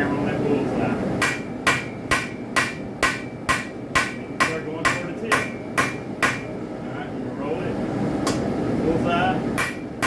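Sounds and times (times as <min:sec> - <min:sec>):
hammer striking metal on anvil: 0:01.2 - 0:06.5, 0:09.6 - 0:10.0.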